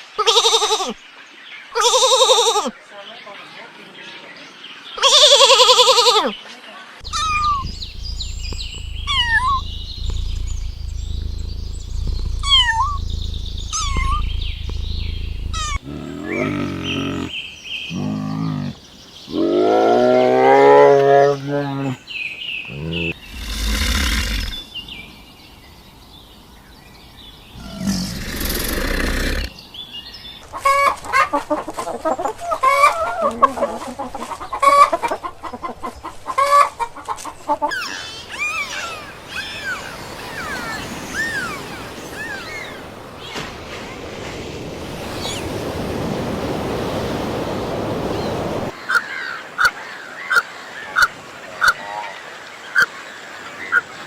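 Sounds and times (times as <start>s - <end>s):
chicks chirping: 7.0s - 15.8s
noisy bursts: 7.0s - 15.8s
hens clucking rapidly: 7.0s - 17.3s, 30.6s - 40.5s
animal calls: 7.0s - 22.0s, 22.6s - 24.7s, 27.6s - 29.5s, 36.3s - 44.1s.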